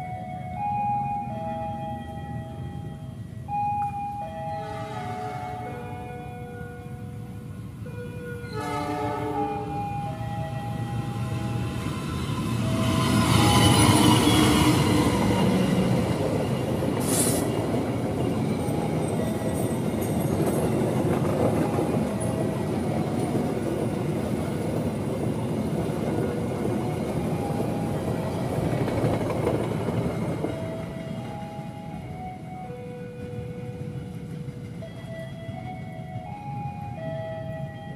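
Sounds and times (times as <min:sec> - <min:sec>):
train rumbling on rails: 0:00.0 - 0:37.9
train wheels screeching: 0:11.5 - 0:23.4.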